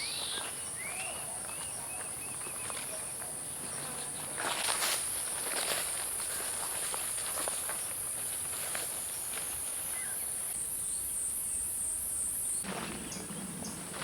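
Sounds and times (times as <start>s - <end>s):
insects shrill chorus: 0.0s - 1.3s
footsteps on leaf litter: 0.1s - 10.4s.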